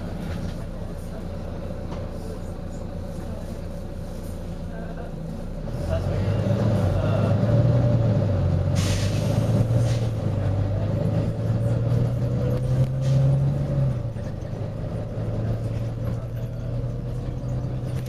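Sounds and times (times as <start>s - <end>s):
bus diesel engine droning: 0.0s - 18.0s
air brake hisses: 8.7s - 10.2s.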